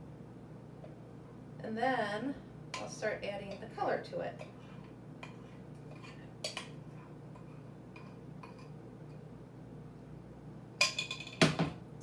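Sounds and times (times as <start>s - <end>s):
cups clinking on a tabletop: 10.8s - 11.8s.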